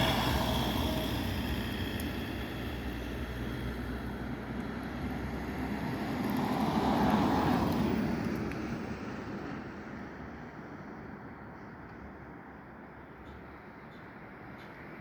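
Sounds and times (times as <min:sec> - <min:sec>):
passenger train rushing past: 0:00.0 - 0:04.6.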